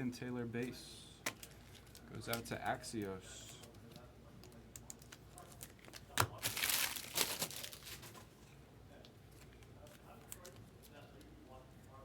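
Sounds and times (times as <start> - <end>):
foil wrapper crinkling and tearing: 5.0 - 8.2.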